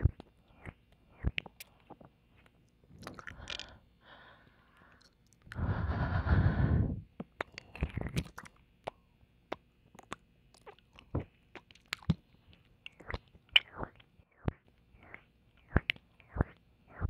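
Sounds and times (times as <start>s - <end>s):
wet mouth clicks: 0.0s - 3.8s, 7.2s - 17.0s
breath into microphone: 3.3s - 7.1s.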